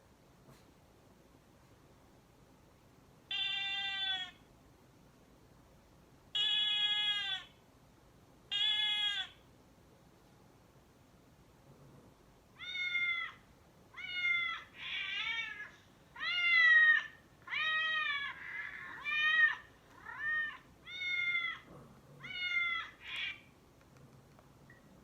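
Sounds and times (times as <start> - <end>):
cat meowing: 3.3 - 4.4, 6.4 - 7.6, 8.5 - 9.4, 12.6 - 13.4, 14.0 - 23.5.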